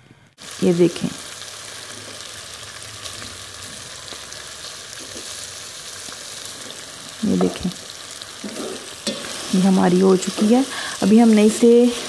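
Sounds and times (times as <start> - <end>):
chicken sizzling in a pot: 0.4 - 12.0
spatula scraping and tapping pot: 8.4 - 9.4.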